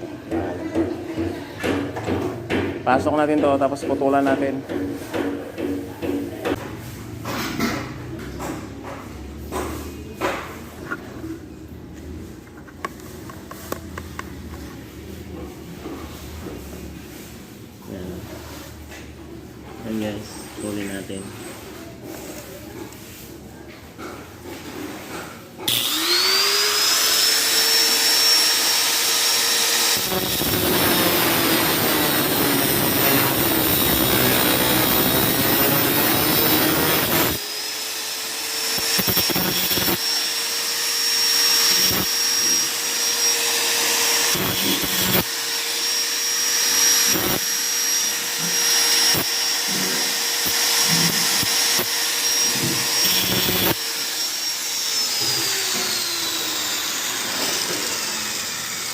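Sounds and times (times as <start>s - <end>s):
power tool grinding through nail: 25.7s - 58.9s.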